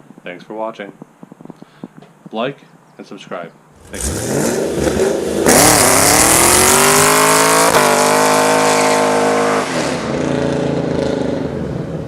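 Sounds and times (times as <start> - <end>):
car engine accelerating hard: 3.8 - 12.0.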